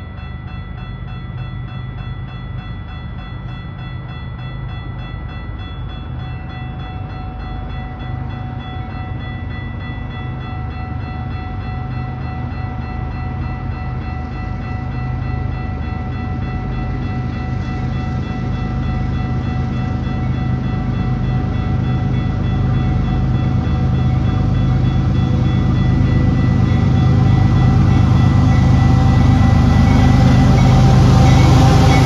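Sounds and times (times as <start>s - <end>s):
diesel train engine rumble: 0.0s - 32.0s
high whine: 16.1s - 32.0s.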